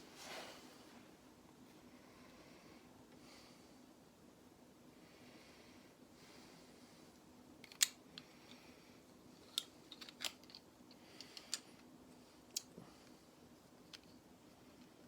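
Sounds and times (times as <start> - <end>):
faint steady hum: 0.0 - 15.0
plastic bricks clicking together: 7.6 - 8.3, 9.5 - 10.6.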